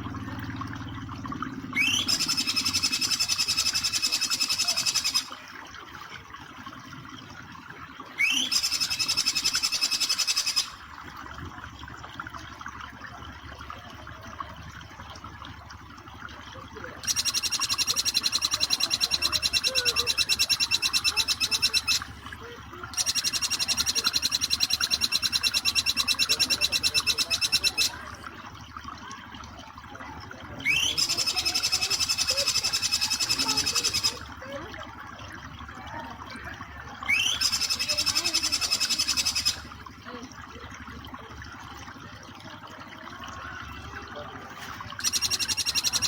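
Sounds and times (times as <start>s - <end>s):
flowing water: 0.0s - 46.0s
bird rattling high trills: 1.8s - 5.4s, 8.2s - 10.8s, 17.0s - 22.1s, 23.0s - 28.0s, 30.6s - 34.2s, 37.1s - 39.7s, 45.0s - 46.0s.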